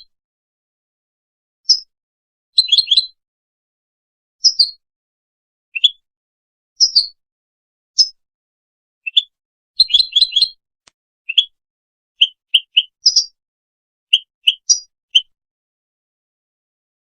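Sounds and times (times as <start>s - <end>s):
bird singing high chirping notes: 5.8s - 6.0s, 9.1s - 10.6s, 11.3s - 11.6s, 12.2s - 13.4s, 14.1s - 15.4s.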